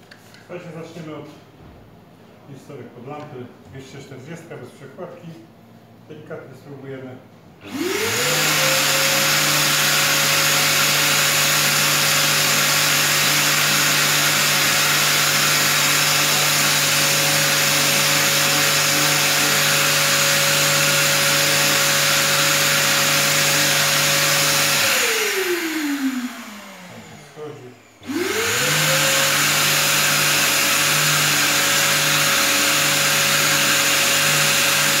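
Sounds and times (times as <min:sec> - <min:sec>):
orbital sander on plastic: 0:07.6 - 0:35.0
sander spinning down: 0:07.6 - 0:35.0.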